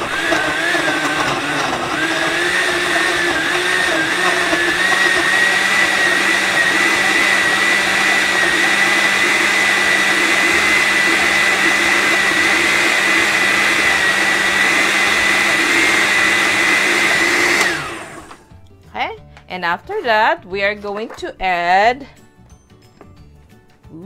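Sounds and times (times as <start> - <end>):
blender running: 0.0 - 18.5.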